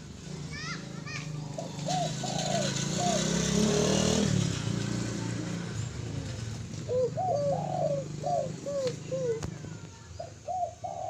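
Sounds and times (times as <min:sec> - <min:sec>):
vehicle engine passing: 0:00.0 - 0:09.9
dove cooing: 0:01.5 - 0:03.5, 0:06.8 - 0:11.0.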